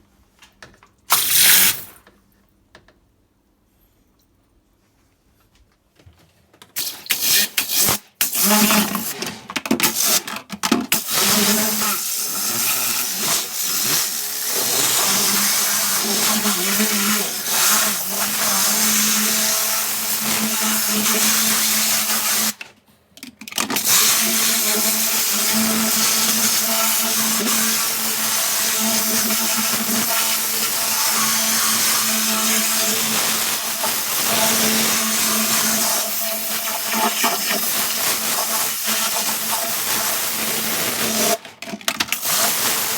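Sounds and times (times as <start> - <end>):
water jet hissing: 1.1 - 2.0, 11.0 - 22.5, 23.8 - 41.4, 42.2 - 42.9.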